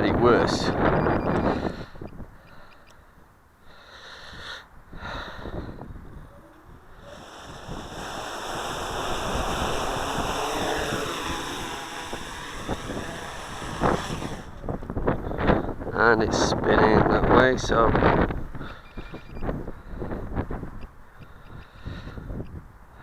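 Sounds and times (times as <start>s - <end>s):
wind buffeting microphone: 4.3s - 22.8s
quadcopter motors whining: 5.1s - 15.8s.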